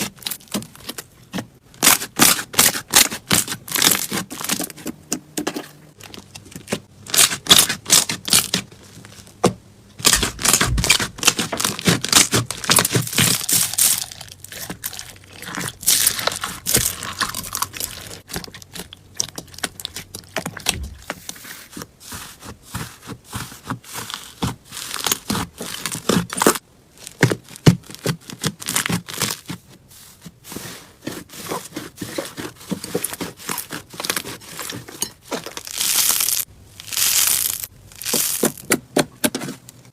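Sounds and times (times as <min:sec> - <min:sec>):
slime crackling and popping: 0:10.0 - 0:21.0, 0:35.5 - 0:38.7.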